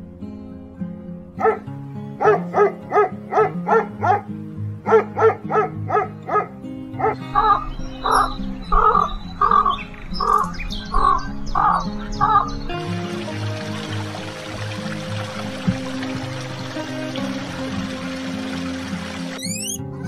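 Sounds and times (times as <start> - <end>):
background music: 0.0 - 20.0
dog barking: 1.4 - 8.2
animal calling: 1.4 - 12.8, 18.6 - 20.0.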